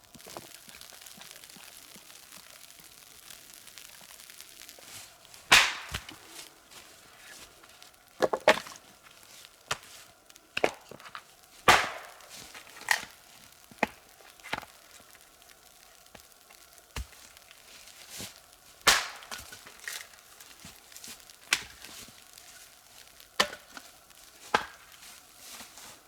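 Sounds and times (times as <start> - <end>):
axe chopping wood: 5.5 - 6.2, 11.7 - 12.2, 18.8 - 20.0, 23.4 - 23.8.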